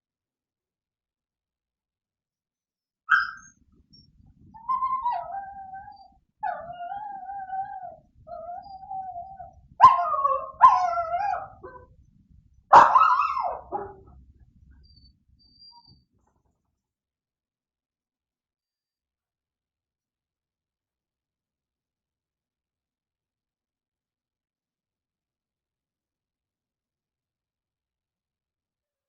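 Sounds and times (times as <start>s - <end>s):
dog barking: 3.1s - 3.5s, 9.8s - 11.9s, 12.7s - 14.1s
dog whining: 3.1s - 11.9s, 12.8s - 14.1s, 14.7s - 16.1s
dog yelping: 3.1s - 11.9s, 12.7s - 14.1s.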